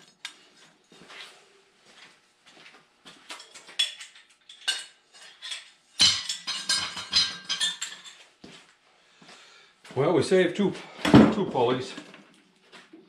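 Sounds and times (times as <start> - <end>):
metal tools clinking: 0.0 - 1.0, 3.3 - 8.3.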